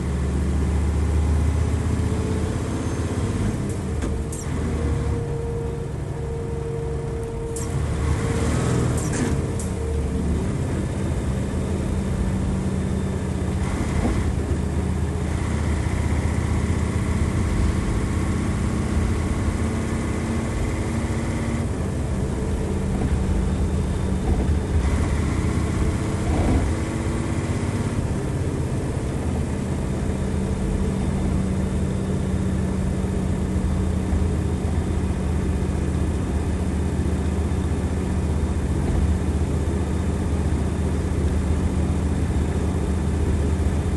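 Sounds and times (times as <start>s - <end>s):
bus diesel engine running: 0.0s - 43.9s
turbo whine: 2.8s - 28.2s.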